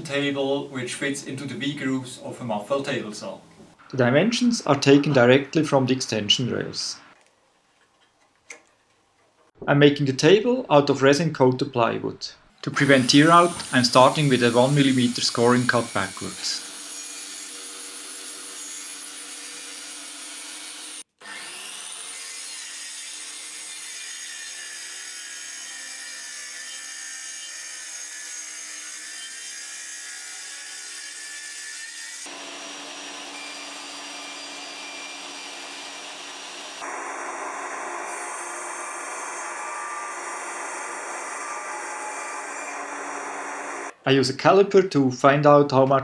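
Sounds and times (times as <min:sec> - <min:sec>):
table saw cutting plywood: 0:12.7 - 0:44.0.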